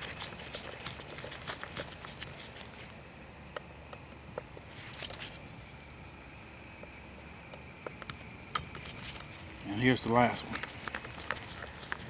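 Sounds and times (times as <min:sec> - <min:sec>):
light rustling: 0:08.1 - 0:12.0.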